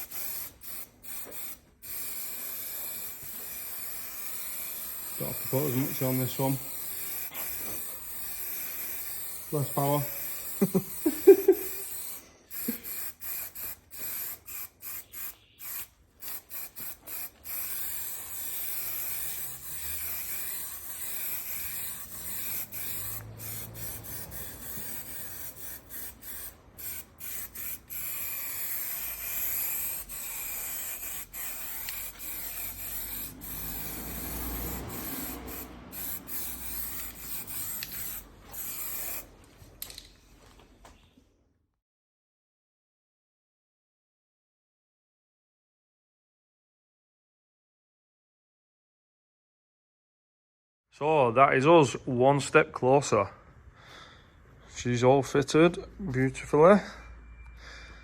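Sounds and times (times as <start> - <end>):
intermittent hissing: 0.0 - 39.3.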